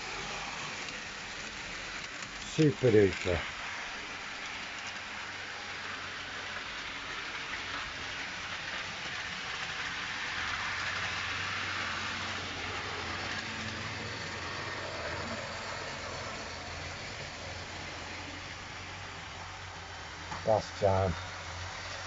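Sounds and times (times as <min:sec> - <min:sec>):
model train wheels rattling on rail: 0:00.0 - 0:22.0.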